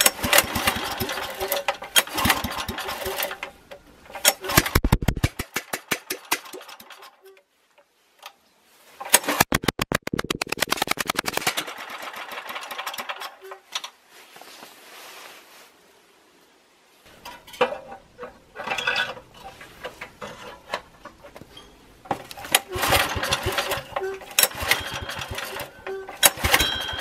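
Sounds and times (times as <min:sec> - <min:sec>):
small generator engine turning over: 0:00.0 - 0:07.1, 0:09.1 - 0:13.2, 0:22.3 - 0:27.0
clattering and knocks: 0:17.2 - 0:27.0.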